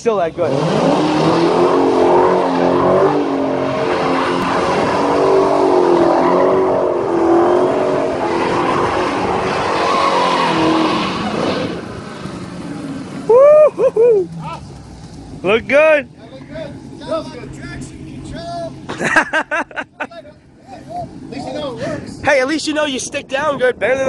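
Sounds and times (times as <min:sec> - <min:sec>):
car engine revving: 0:00.3 - 0:22.2.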